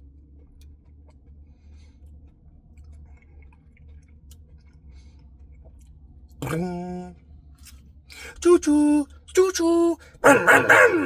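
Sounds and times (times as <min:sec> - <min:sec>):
low steady hum: 0:00.0 - 0:11.0
soft chewing: 0:00.2 - 0:06.7.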